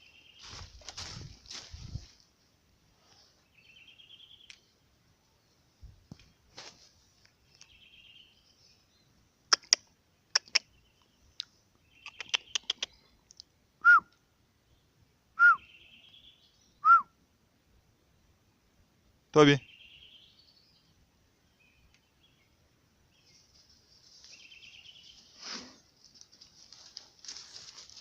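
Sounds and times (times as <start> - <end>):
small birds twittering: 0.0 - 2.0, 7.3 - 13.5, 15.6 - 16.8, 19.4 - 25.9
sharp clicks: 9.6 - 10.6.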